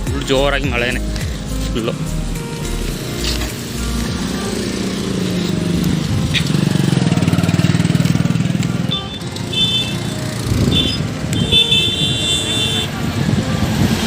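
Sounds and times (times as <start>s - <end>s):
vehicle engine passing: 1.0s - 14.0s
vehicle horn short beeps: 8.9s - 12.9s.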